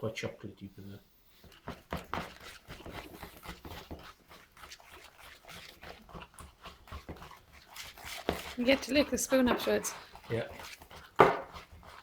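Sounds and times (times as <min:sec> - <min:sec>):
whisk scraping a bowl: 0:01.3 - 0:12.0.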